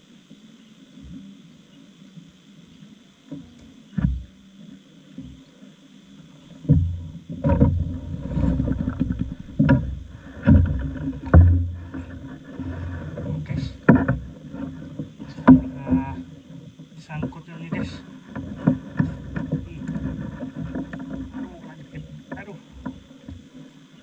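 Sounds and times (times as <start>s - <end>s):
water sloshing against boat: 2.8s - 24.0s
irregular thumps: 6.6s - 23.5s
low rumble: 7.7s - 12.3s.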